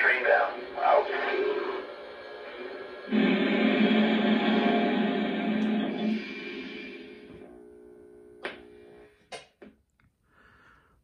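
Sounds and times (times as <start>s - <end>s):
loud steady pitched tone: 0.0s - 8.5s
faint steady hum: 0.0s - 9.3s.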